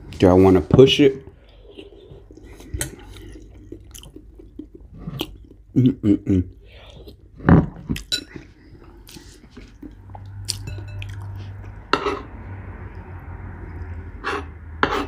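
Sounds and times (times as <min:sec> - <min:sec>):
chewing: 0:01.4 - 0:05.8, 0:06.5 - 0:12.2
spoon clinking in a bowl: 0:10.6 - 0:11.3.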